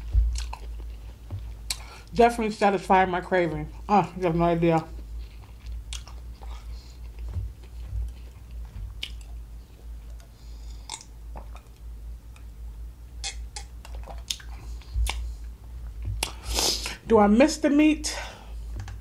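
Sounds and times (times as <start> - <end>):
chewing with wet smacks: 0.0 - 2.2, 4.6 - 12.6, 13.2 - 17.0.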